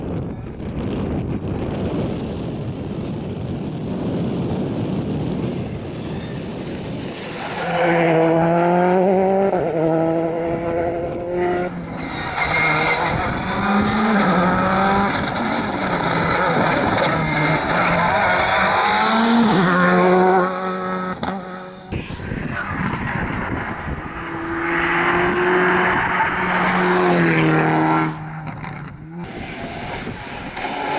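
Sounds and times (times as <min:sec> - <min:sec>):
rally car engine accelerating: 0:06.6 - 0:30.9.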